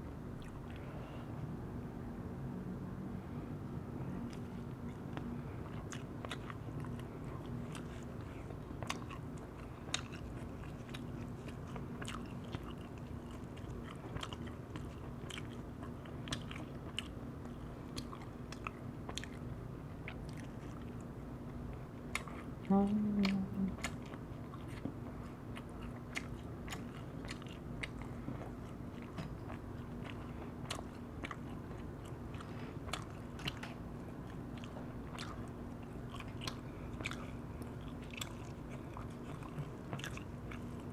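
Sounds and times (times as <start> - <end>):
steady low hum: 0.0 - 40.9
chewing and biting chicken: 4.1 - 40.9.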